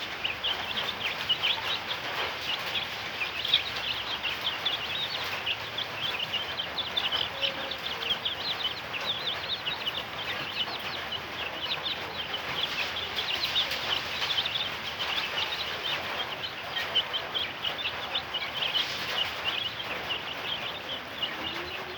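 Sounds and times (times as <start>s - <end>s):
chicks peeping: 0.0s - 21.9s.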